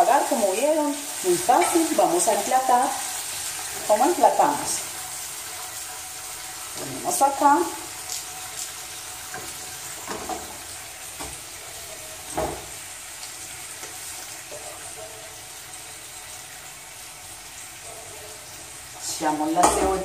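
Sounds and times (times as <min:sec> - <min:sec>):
liver sizzling in frying pan: 0:00.0 - 0:20.0
sharp knock of a pan: 0:19.6 - 0:20.0.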